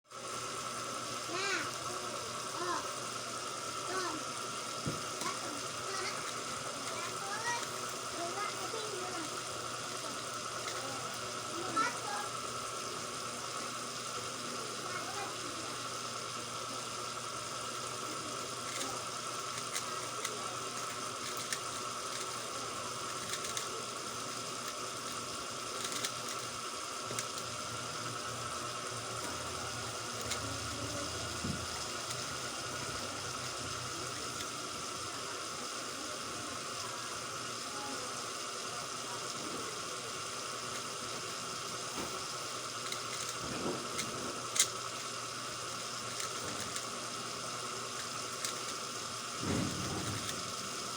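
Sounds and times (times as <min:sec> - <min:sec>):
puzzle cube plastic clicks: 0:18.6 - 0:27.5, 0:42.2 - 0:45.2, 0:45.8 - 0:46.9, 0:48.0 - 0:48.9.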